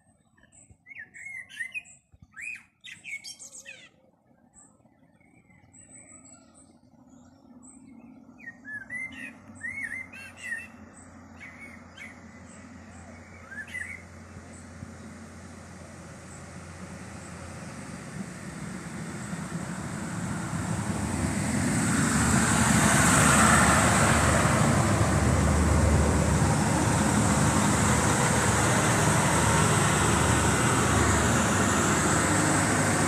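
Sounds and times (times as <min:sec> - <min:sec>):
diesel train arriving: 0:12.3 - 0:33.0.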